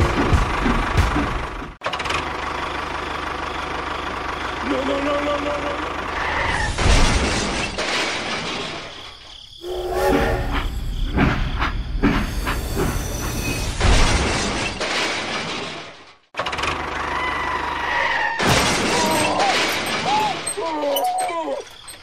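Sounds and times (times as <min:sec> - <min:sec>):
train rumbling on rails: 0:00.0 - 0:01.8, 0:09.6 - 0:13.8.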